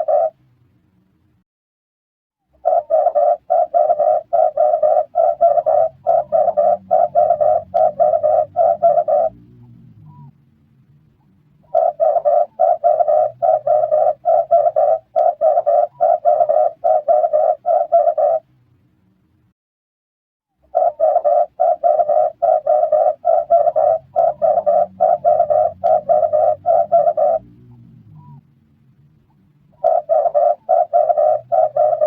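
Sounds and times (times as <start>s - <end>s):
dove cooing: 0.0s - 0.4s, 2.6s - 10.3s, 11.6s - 18.5s, 20.7s - 28.4s, 29.7s - 32.0s.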